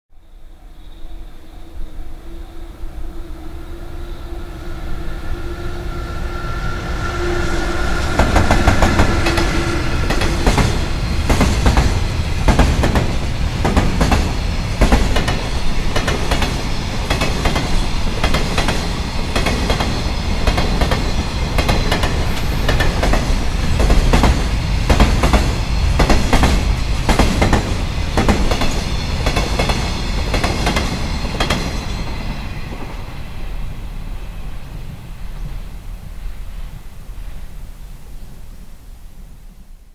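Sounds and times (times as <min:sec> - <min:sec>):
electric locomotive humming: 0:00.2 - 0:39.7
train wheels clattering on rails: 0:06.8 - 0:35.7.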